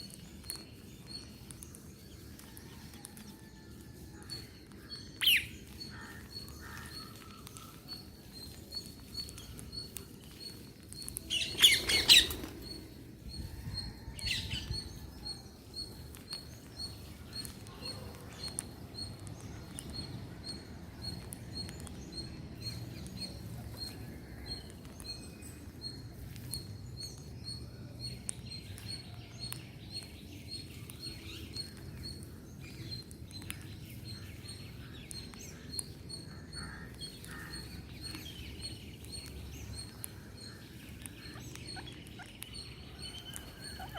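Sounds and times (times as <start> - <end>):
small scattered clicks: 0.0 - 12.9, 14.7 - 43.9
parrot calling: 43.2 - 43.9.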